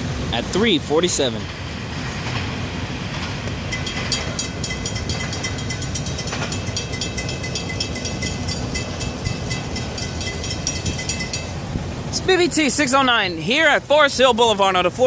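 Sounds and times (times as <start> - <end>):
freight train rumble: 0.0 - 15.0
steel wheels clicking on rails: 0.0 - 15.0
thin high ringing tone: 2.9 - 11.7.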